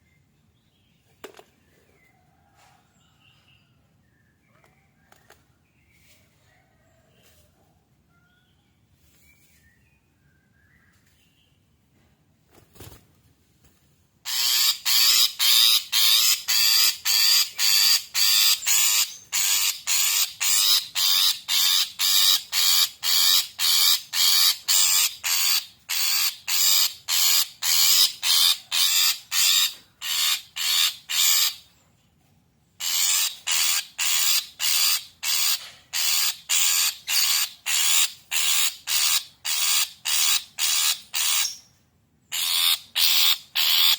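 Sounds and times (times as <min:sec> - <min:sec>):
shrike harsh rasping calls: 0:14.3 - 0:31.6, 0:42.3 - 0:43.9.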